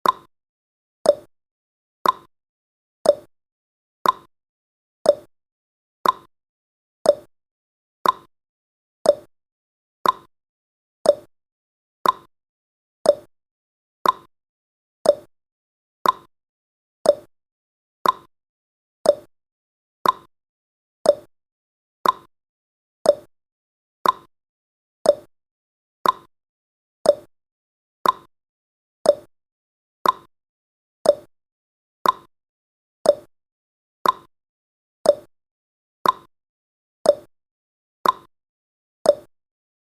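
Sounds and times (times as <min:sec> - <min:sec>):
clock ticking: 0:02.0 - 0:02.3, 0:04.0 - 0:04.3, 0:06.0 - 0:06.3, 0:08.0 - 0:08.3, 0:10.0 - 0:10.3, 0:12.0 - 0:12.3, 0:14.0 - 0:14.3, 0:15.1 - 0:15.3, 0:16.0 - 0:16.3, 0:18.0 - 0:18.3, 0:19.1 - 0:19.3, 0:20.0 - 0:20.3, 0:21.1 - 0:21.3, 0:22.0 - 0:22.3, 0:24.0 - 0:24.3, 0:26.0 - 0:26.3, 0:28.0 - 0:28.3, 0:29.1 - 0:29.3, 0:30.0 - 0:30.3, 0:31.1 - 0:31.3, 0:32.0 - 0:32.3, 0:33.1 - 0:33.3, 0:34.0 - 0:34.3, 0:35.1 - 0:35.3, 0:36.0 - 0:36.3, 0:38.0 - 0:38.3, 0:39.1 - 0:39.3.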